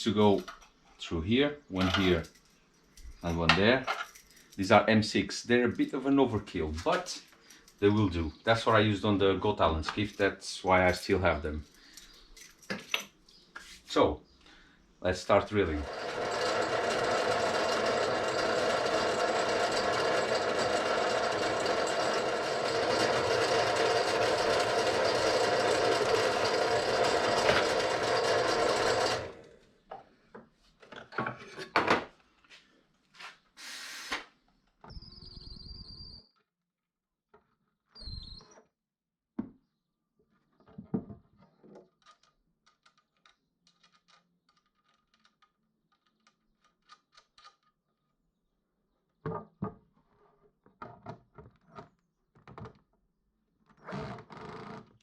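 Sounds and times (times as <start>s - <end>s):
clicks and knocks of handling: 11.6s - 13.7s, 40.5s - 47.9s
power drill boring into wood: 15.6s - 29.5s.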